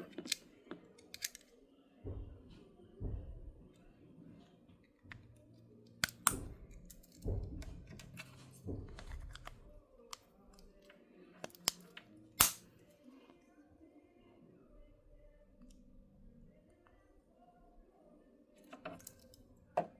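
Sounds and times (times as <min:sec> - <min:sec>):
plastic key fob clicks and snaps: 0:00.1 - 0:00.4, 0:01.0 - 0:01.5, 0:06.0 - 0:07.3, 0:11.4 - 0:12.6.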